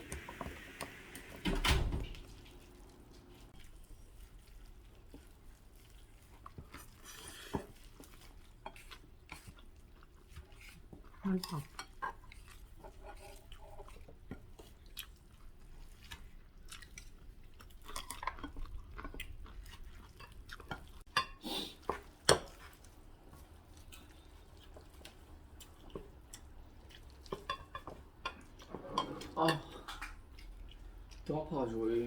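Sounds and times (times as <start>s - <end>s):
chewing: 2.4s - 32.0s
utensils clinking against bowls: 27.3s - 30.1s.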